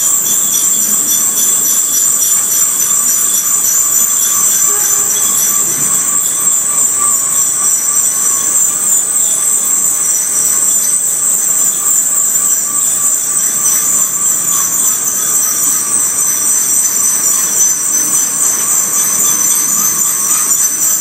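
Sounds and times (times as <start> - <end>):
train wheels squealing: 0.0 - 21.0.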